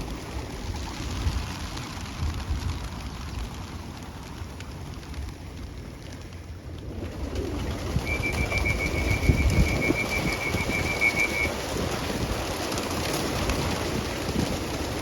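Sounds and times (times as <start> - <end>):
wings flapping: 0.0 - 15.0
high trilled whistle: 8.0 - 11.5.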